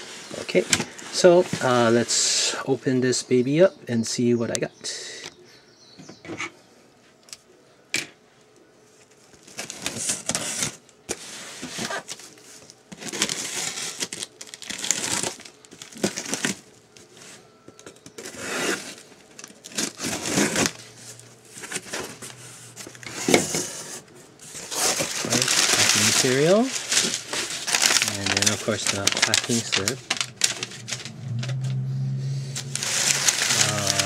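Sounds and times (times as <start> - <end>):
packing material rustling: 9.3 - 17.2, 17.9 - 31.8, 32.5 - 34.0
packing tape tearing: 12.9 - 16.6, 18.1 - 20.8, 24.6 - 31.4, 32.6 - 34.0.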